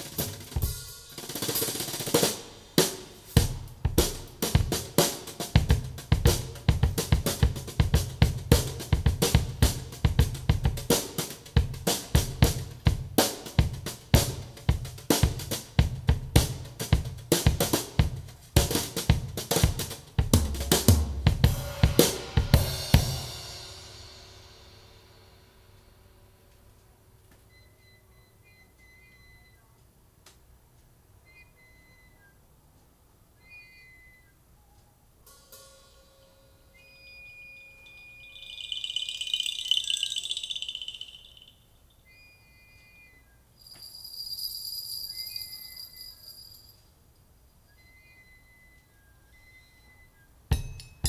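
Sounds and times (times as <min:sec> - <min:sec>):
drum music through a speaker: 0:00.0 - 0:24.2
faint steady tone: 0:25.8 - 0:30.1, 0:30.7 - 0:50.5
speaker rattling shimmer: 0:37.6 - 0:42.0.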